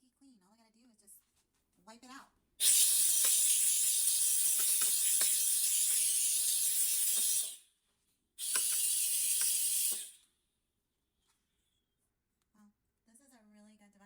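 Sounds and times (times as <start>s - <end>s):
steam cleaner hissing: 2.6s - 7.6s, 8.4s - 10.2s.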